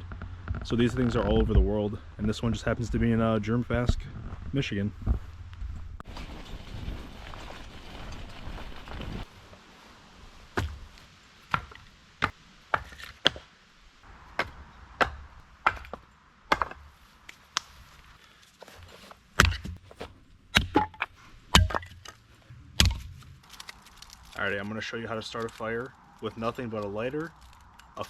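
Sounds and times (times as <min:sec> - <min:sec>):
firewood being chopped: 0:10.5 - 0:13.5, 0:14.3 - 0:22.2, 0:22.8 - 0:24.4.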